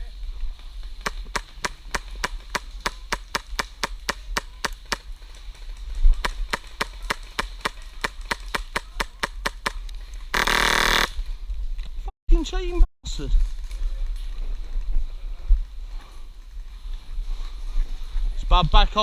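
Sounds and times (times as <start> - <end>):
rapid full-auto burst: 6.2 - 11.2
airsoft gun shots: 10.4 - 11.2.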